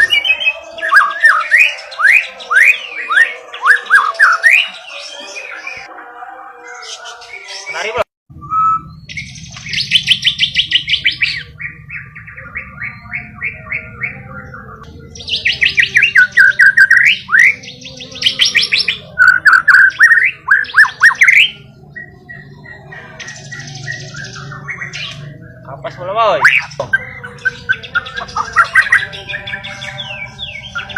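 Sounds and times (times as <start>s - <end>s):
bird singing fast trills: 6.8s - 30.9s.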